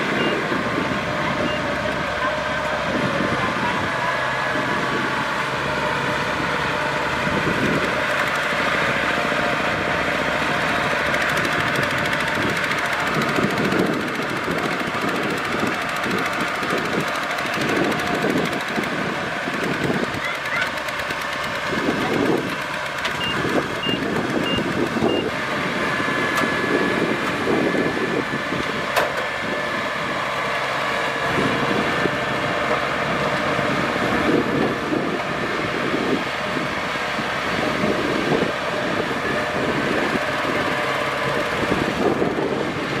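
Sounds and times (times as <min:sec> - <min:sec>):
combine harvester running: 0:00.0 - 0:43.0
short high beeps: 0:23.2 - 0:25.3.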